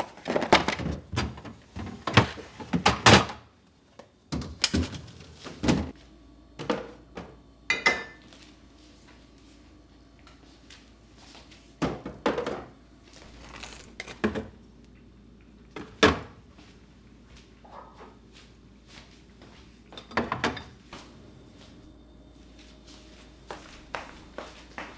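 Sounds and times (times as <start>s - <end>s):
kitchenware knocking and clattering: 7.7s - 8.2s, 20.0s - 20.8s.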